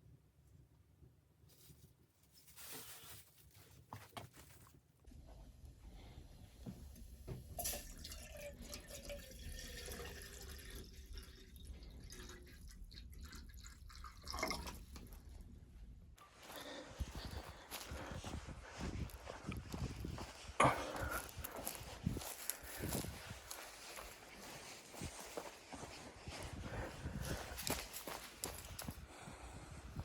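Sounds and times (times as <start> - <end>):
water dripping and trickling: 7.5 - 15.2.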